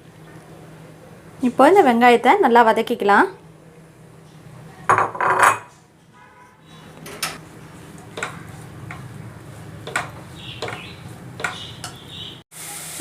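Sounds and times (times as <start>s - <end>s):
spatula knocking on a pan: 8.2s - 9.1s, 9.8s - 12.0s
onions frying in hot oil: 11.5s - 13.0s.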